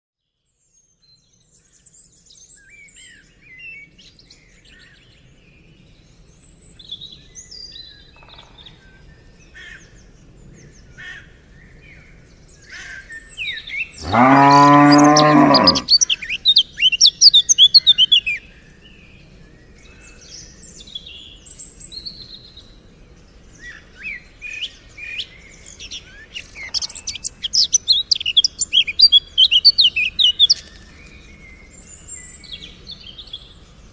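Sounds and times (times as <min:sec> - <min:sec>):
birds chirping: 0:12.6 - 0:33.9
cow mooing: 0:14.0 - 0:16.0.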